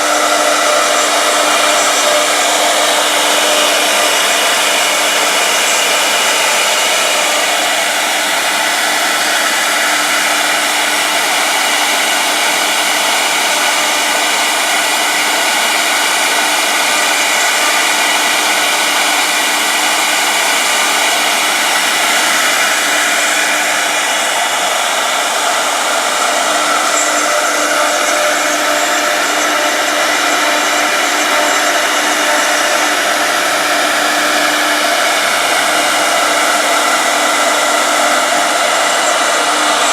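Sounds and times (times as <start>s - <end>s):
cnc router spindle whine: 0.0s - 39.9s.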